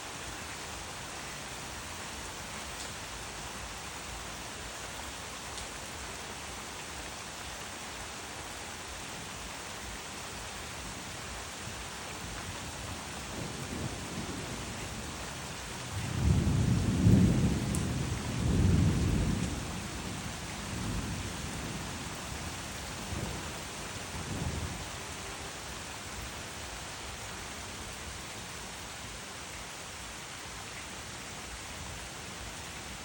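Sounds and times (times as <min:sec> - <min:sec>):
heavy rain hissing: 0:00.0 - 0:33.0
thunder rumbling: 0:16.0 - 0:21.9.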